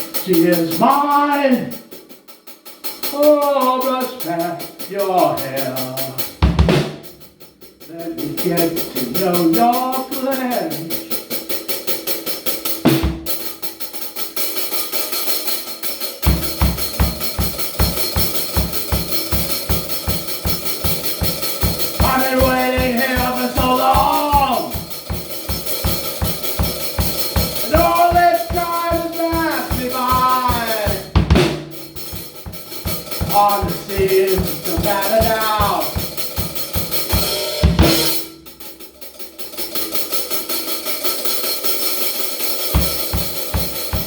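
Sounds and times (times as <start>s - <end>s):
drum kit beating fast rhythm: 0.0s - 44.0s
progressive rock band playing: 16.3s - 38.2s.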